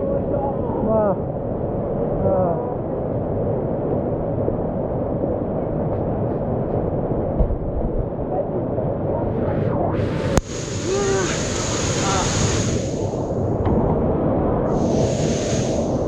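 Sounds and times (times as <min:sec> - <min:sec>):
wind noise: 0:00.0 - 0:16.0
muffled river water rushing: 0:08.0 - 0:16.0.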